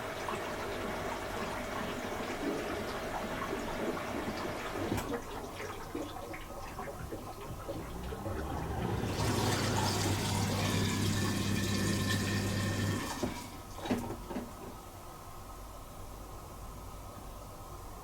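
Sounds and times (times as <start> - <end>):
dishwasher pump humming: 0.0 - 14.9
water rushing: 7.6 - 13.4.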